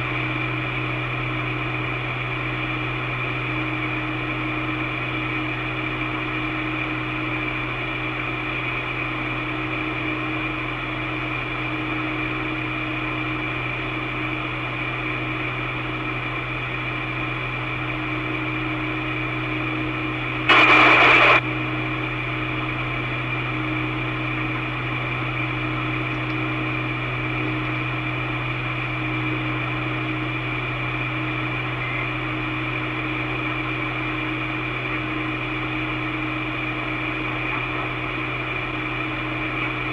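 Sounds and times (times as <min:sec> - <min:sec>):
loud static burst: 0:20.5 - 0:21.4
radio channel hum and hiss: 0:20.5 - 0:21.4, 0:31.6 - 0:32.4.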